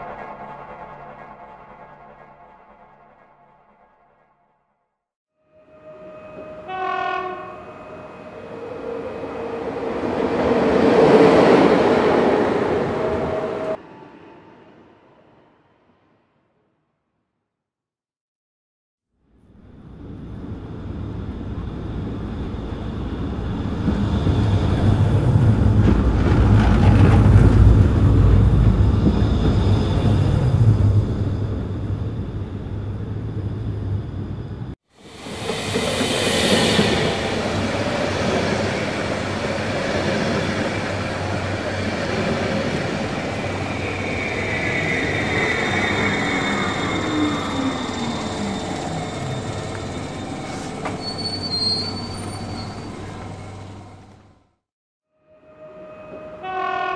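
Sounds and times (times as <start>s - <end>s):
train wheels rumbling: 20.2s - 54.2s
wheel squeal: 41.6s - 54.0s.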